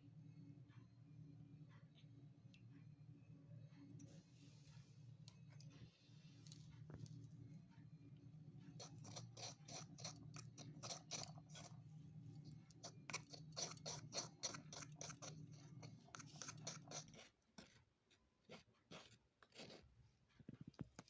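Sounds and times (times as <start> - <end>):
steady low hum: 0.0 - 17.8
small utensil strokes: 8.8 - 11.8, 12.4 - 17.9.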